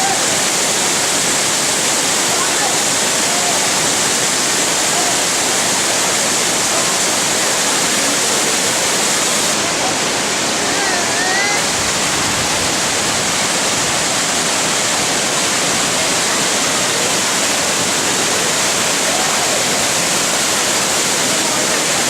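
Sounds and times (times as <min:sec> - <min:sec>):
waterfall splashing: 0:00.0 - 0:22.0.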